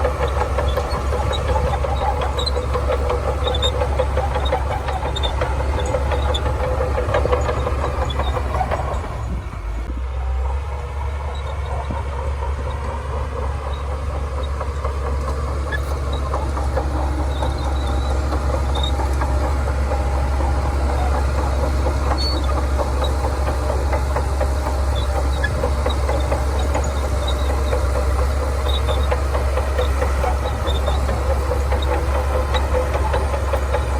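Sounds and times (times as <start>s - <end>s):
bulldozer diesel engine rumbling: 0.0s - 33.9s
steel tracks clattering: 0.0s - 33.9s
faint high squeaks: 11.1s - 14.8s.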